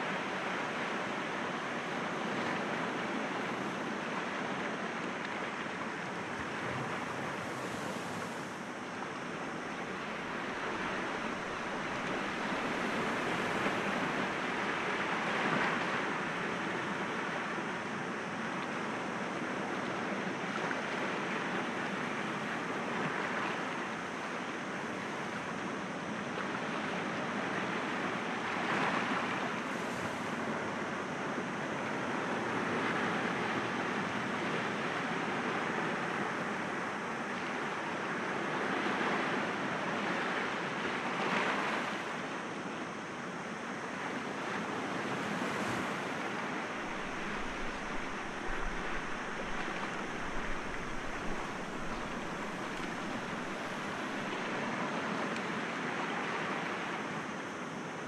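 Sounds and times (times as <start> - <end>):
sea waves breaking against rocks: 6.1 - 9.0, 9.8 - 15.7, 44.4 - 54.6.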